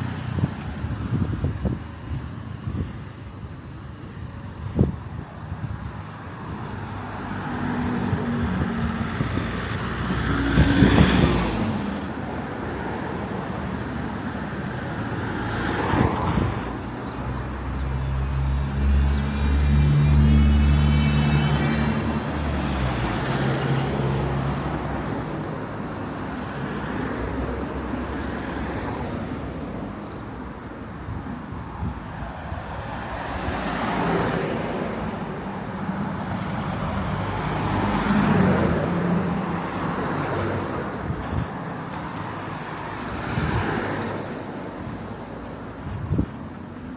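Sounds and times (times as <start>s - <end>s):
cars passing: 0.0s - 46.9s.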